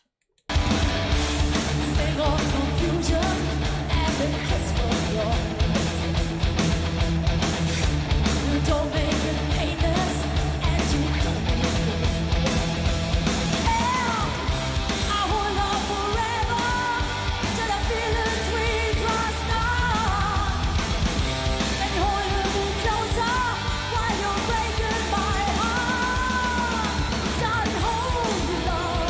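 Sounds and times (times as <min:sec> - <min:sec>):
heavy metal band playing: 0:00.5 - 0:29.0
woman singing: 0:01.7 - 0:06.0, 0:08.4 - 0:11.8, 0:13.6 - 0:21.0, 0:21.6 - 0:29.0.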